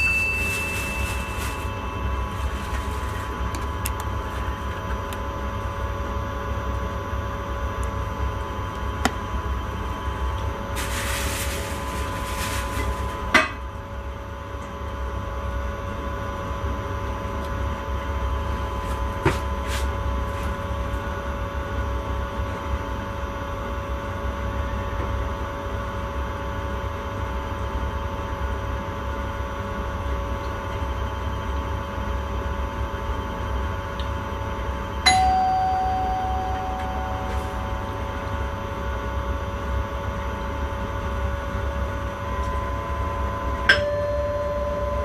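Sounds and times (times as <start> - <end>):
train rumble: 0.3 - 5.0, 10.8 - 13.3.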